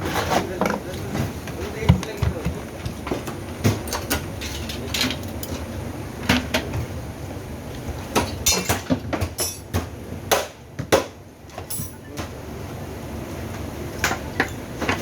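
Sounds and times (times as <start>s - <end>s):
hard parts knocking and clattering: 0.4s - 5.7s.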